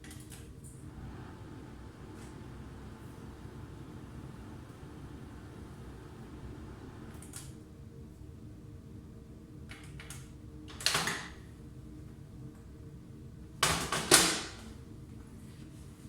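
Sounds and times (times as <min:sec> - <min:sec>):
microwave oven humming: 0:00.7 - 0:07.7.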